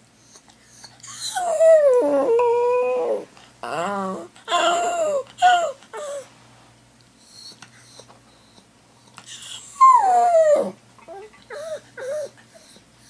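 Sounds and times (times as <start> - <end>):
dog whimpering: 0.3 - 6.3, 7.2 - 8.6, 9.3 - 12.9
dog howling: 1.2 - 6.2, 9.4 - 12.4.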